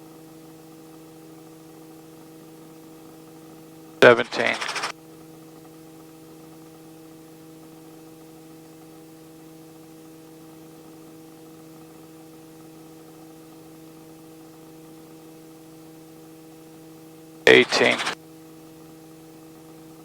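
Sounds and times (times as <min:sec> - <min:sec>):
helicopter hovering drone: 0:04.0 - 0:04.9, 0:17.5 - 0:18.2.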